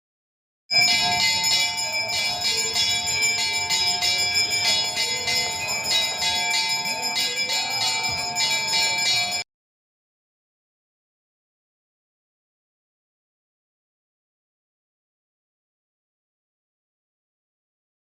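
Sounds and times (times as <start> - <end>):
temple bells ringing: 0.7 - 9.4
faint voices: 0.8 - 9.4.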